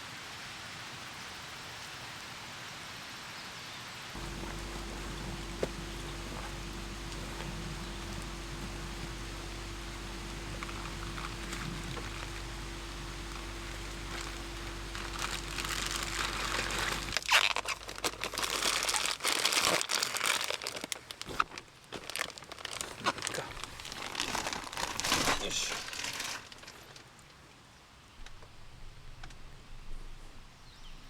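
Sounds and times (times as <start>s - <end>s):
low hum: 4.2s - 19.1s
material crinkling and rustling: 4.2s - 27.1s.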